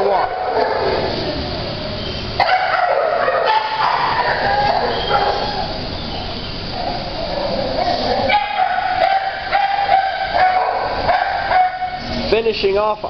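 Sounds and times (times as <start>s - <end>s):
dog howling: 0.0s - 1.7s, 2.4s - 12.3s
dogs barking echoing: 0.0s - 12.4s.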